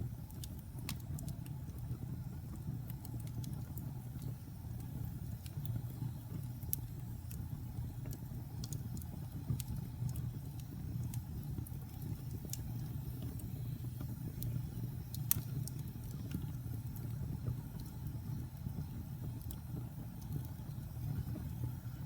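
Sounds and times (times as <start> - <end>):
wood fire burning: 0.0 - 22.0.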